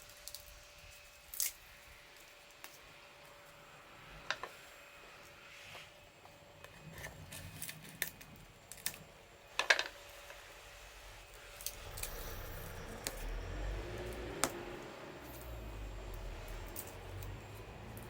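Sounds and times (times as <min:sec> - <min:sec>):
wood fire crackling: 0:00.0 - 0:03.5, 0:06.2 - 0:18.0
low rumble: 0:11.7 - 0:18.0.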